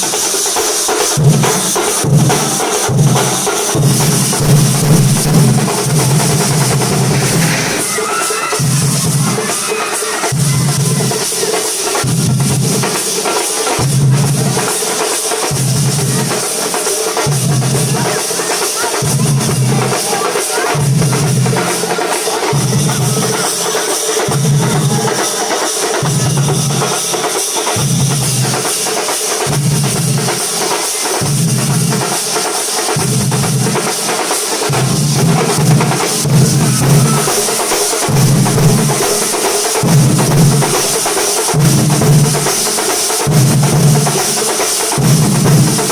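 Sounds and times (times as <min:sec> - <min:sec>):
rolling snare drumming: 0:00.0 - 0:45.9
deep bass drum strokes: 0:03.8 - 0:07.9.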